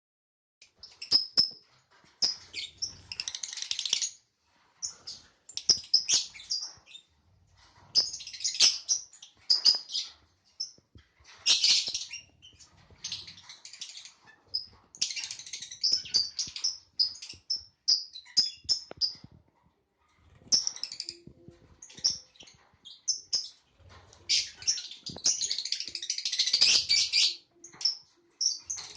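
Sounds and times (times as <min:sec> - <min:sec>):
lovebird chirping: 0:04.8 - 0:07.1, 0:07.9 - 0:19.4, 0:20.3 - 0:23.6, 0:24.3 - 0:28.9.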